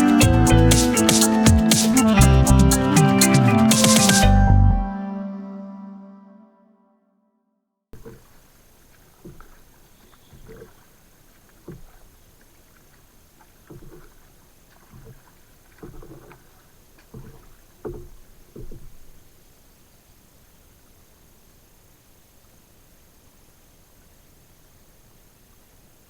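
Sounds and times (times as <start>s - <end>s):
faint hiss: 0.0s - 4.2s, 8.0s - 13.6s, 18.3s - 26.0s
paddle splashing in water: 8.0s - 19.4s.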